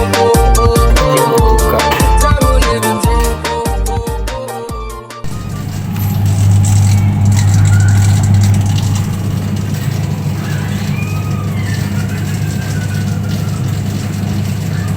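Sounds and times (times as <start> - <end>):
washing machine motor humming: 5.2 - 14.9.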